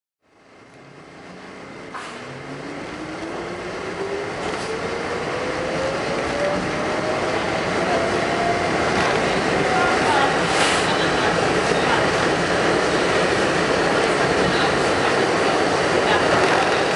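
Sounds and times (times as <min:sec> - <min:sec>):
subway train motor whine: 0:00.3 - 0:16.9
wheel and rail rumble: 0:00.5 - 0:16.9.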